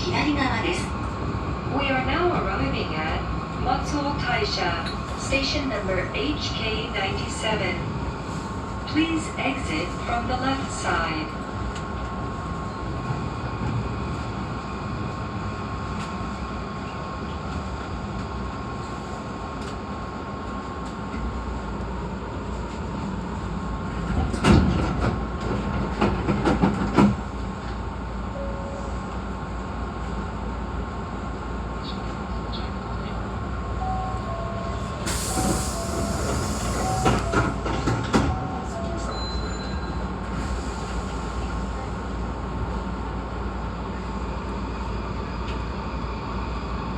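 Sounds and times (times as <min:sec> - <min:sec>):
train knocks: 0:24.0 - 0:27.8, 0:33.8 - 0:40.4.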